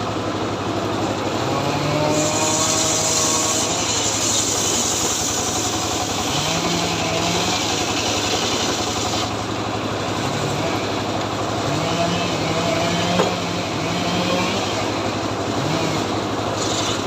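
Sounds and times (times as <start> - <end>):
chainsaw engine running: 0.0 - 17.0
chain cutting through wood: 1.8 - 9.3, 15.6 - 17.0.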